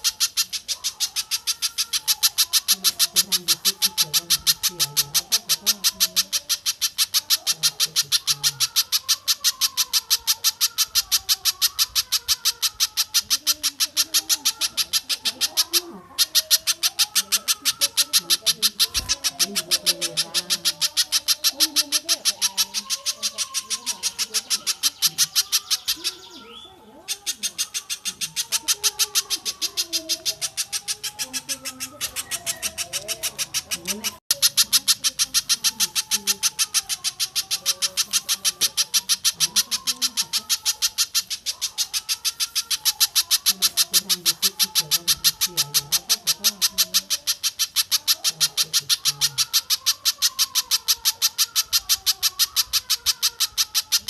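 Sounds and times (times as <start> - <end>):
bird chipping high and fast: 0.0 - 54.0
softer wavering bird calls: 0.0 - 54.0.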